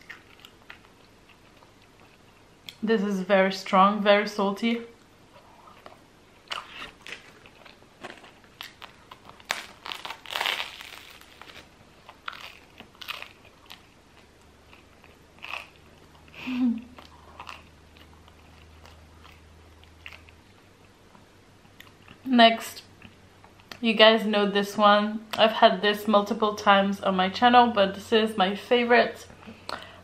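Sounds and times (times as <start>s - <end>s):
chewing: 0.0s - 2.8s, 11.4s - 22.2s
crunching crusty bread: 6.5s - 16.3s.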